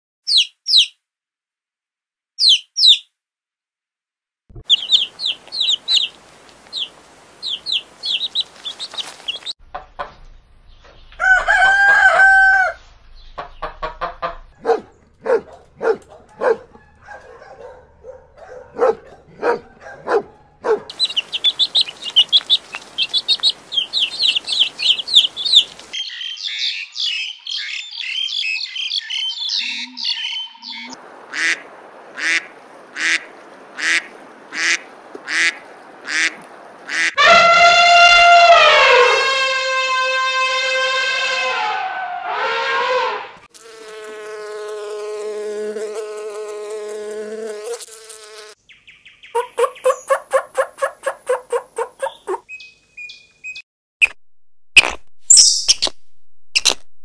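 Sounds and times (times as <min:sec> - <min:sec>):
small birds chirping: 0:00.2 - 0:01.0, 0:02.4 - 0:03.1, 0:04.5 - 0:09.6, 0:13.0 - 0:37.0, 0:47.5 - 0:53.6, 0:55.3 - 0:55.9
chicks peeping: 0:04.6 - 0:10.1, 0:20.0 - 0:27.0, 0:48.7 - 0:53.6
chicken clucking: 0:04.6 - 0:10.3, 0:13.2 - 0:25.8, 0:49.4 - 0:52.6
rooster crowing: 0:11.2 - 0:12.9, 0:14.6 - 0:17.8, 0:37.2 - 0:43.4.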